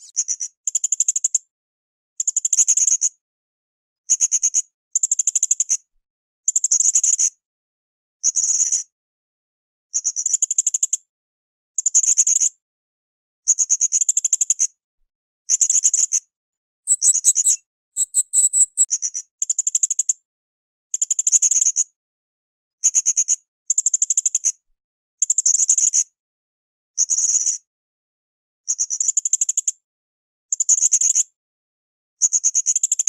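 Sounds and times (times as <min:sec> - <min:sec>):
parrot stuttering chirps: 0:16.9 - 0:18.9.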